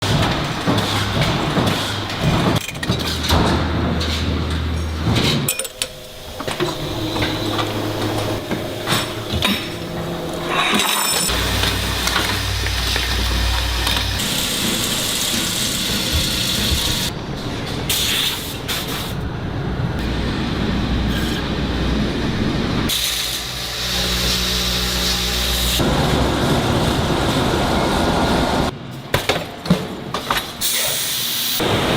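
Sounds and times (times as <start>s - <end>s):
factory machinery clattering: 0.0s - 31.0s
low hum: 3.2s - 15.4s.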